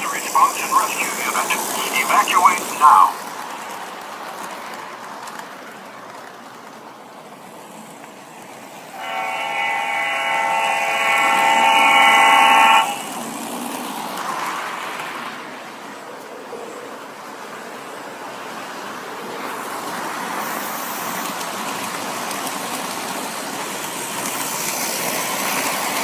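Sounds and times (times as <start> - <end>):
electronic train horn blast: 8.9 - 13.6.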